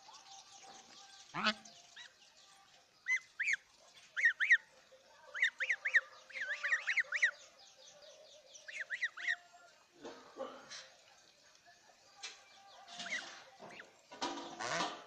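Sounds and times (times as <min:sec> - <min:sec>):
birds calling harshly: 0:00.0 - 0:02.2, 0:03.0 - 0:09.8, 0:12.2 - 0:15.0.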